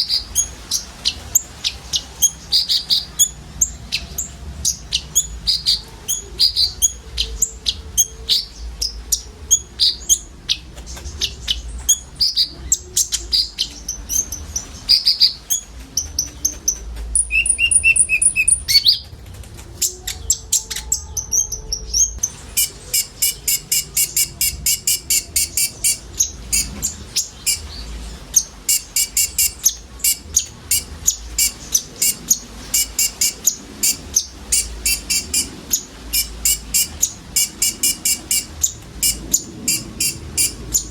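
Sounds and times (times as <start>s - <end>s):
buzzy bird trill: 0.0s - 19.0s, 19.8s - 40.9s
birds chirping and twittering: 0.0s - 40.9s
repeated sharp bird chirps: 17.2s - 19.1s, 22.2s - 40.9s.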